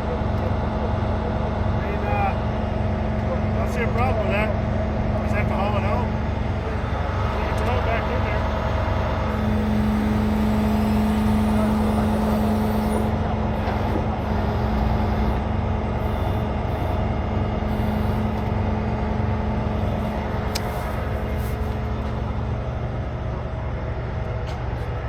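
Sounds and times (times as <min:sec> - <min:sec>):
diesel truck engine droning: 0:00.0 - 0:25.0.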